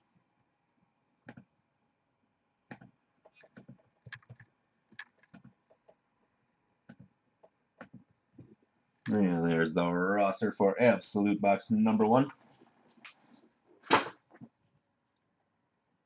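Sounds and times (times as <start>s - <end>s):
mouse and keyboard clicks: 2.7s - 6.0s.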